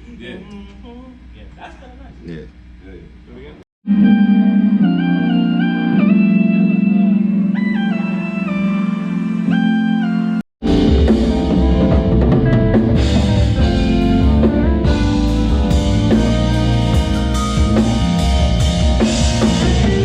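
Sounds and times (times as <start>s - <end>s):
band playing a loud groove: 10.6s - 20.0s.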